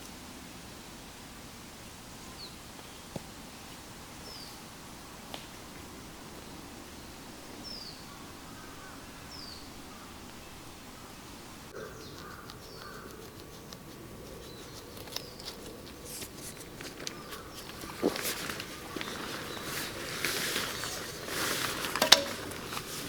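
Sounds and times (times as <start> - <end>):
lower bird calls: 4.2 - 23.0
sharp clicks and knocks: 22.0 - 22.6.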